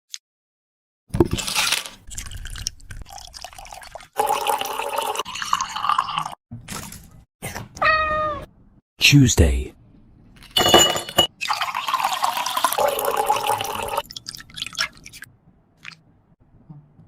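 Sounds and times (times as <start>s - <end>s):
liquid pouring and splashing: 2.0s - 6.4s, 11.3s - 16.0s.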